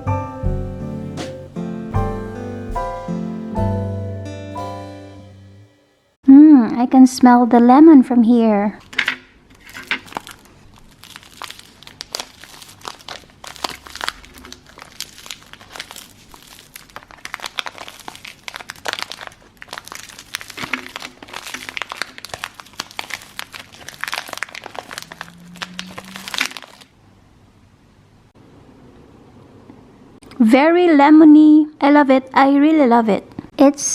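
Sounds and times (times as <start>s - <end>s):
plastic wrapper crinkling: 9.5s - 26.9s.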